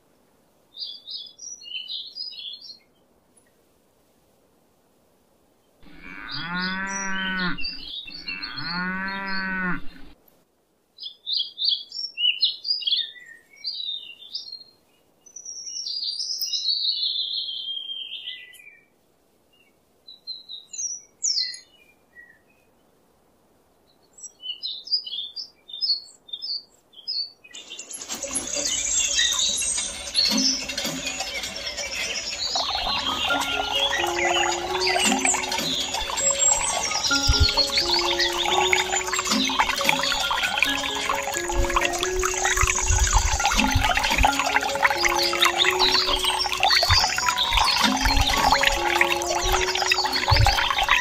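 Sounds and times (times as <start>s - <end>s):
cow mooing: 5.8s - 10.1s
birds chirping: 5.8s - 10.2s, 27.5s - 51.0s.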